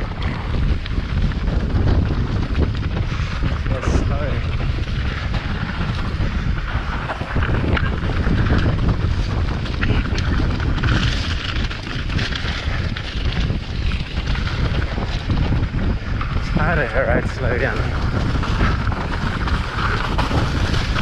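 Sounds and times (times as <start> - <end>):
sharp clicks and knocks from bike: 0.0 - 3.7, 4.4 - 16.4
mountain bike rumbling on rough trail: 0.0 - 21.0
wind buffeting microphone: 0.0 - 21.0.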